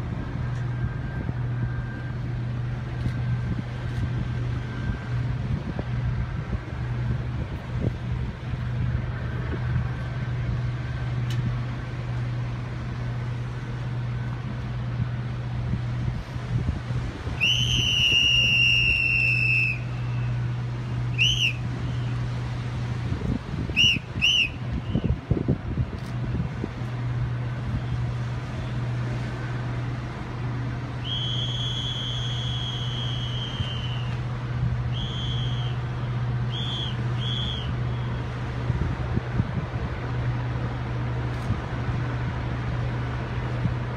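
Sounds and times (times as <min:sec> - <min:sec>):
steady low hum: 0:00.0 - 0:43.9
shrill whistle blasts: 0:17.4 - 0:20.3, 0:21.2 - 0:22.1, 0:23.8 - 0:25.1, 0:31.0 - 0:34.2, 0:34.9 - 0:35.8, 0:36.5 - 0:38.1.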